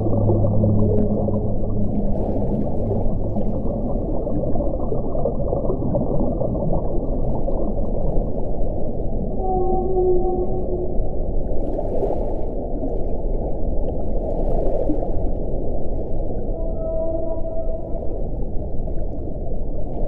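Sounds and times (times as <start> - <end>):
wind blowing: 0.0 - 7.0
low howling tone: 0.0 - 11.7, 16.2 - 19.8.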